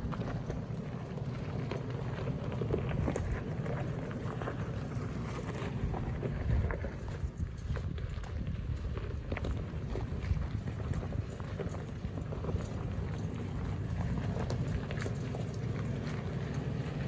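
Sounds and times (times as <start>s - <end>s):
vehicle rumbling over rough trail: 0.0s - 17.0s
wind on microphone: 5.8s - 11.4s.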